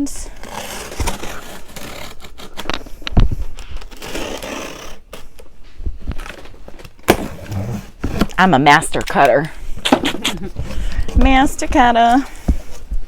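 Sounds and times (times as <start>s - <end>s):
cutter slicing packing tape: 3.9s - 5.2s
box thumping: 6.1s - 12.9s.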